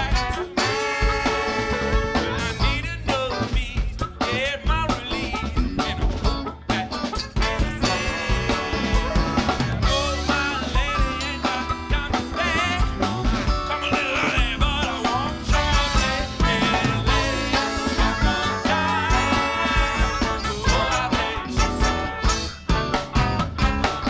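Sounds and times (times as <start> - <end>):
drum kit beat: 0.0 - 24.0
funk band playing: 0.0 - 24.0
person singing: 7.4 - 22.3.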